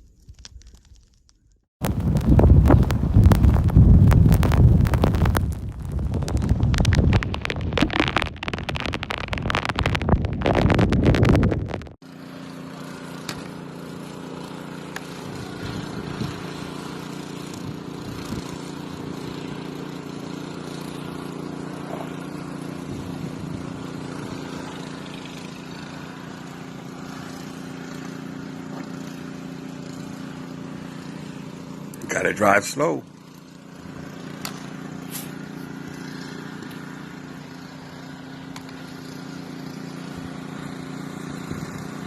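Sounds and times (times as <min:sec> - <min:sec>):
wind buffeting microphone: 0:01.8 - 0:11.8
vehicle engine and road noise: 0:01.8 - 0:42.0.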